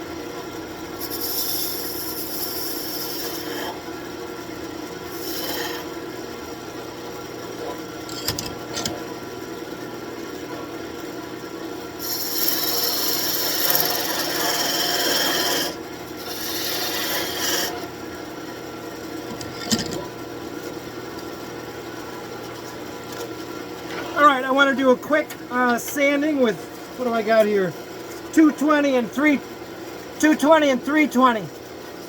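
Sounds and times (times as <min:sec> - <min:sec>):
tool scraping spinning wood: 0:05.2 - 0:05.9, 0:12.0 - 0:17.9
wood lathe humming: 0:12.1 - 0:17.9.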